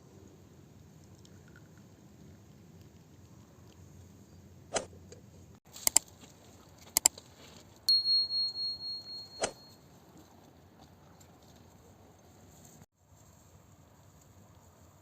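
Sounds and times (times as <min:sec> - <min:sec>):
ringing high tone strike: 0:07.9 - 0:09.8.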